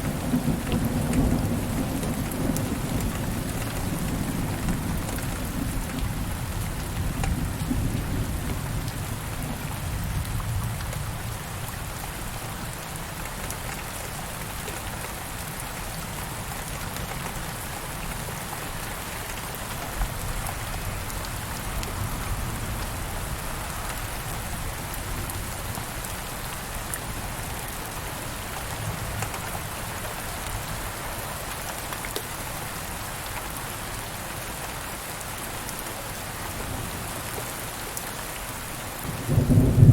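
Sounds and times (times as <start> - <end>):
heavy rain falling: 0.0 - 39.9
distant thunder rumble: 39.1 - 39.9.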